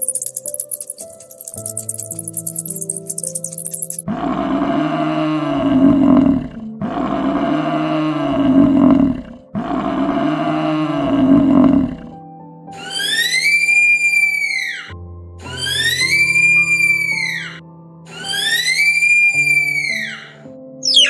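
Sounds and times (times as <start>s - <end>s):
large animal deep call: 4.1s - 12.1s.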